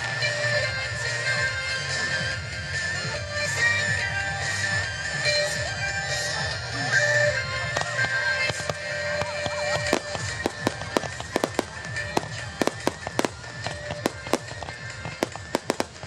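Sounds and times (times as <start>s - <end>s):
music: 0.0s - 16.0s
fireworks bangs: 8.5s - 16.0s.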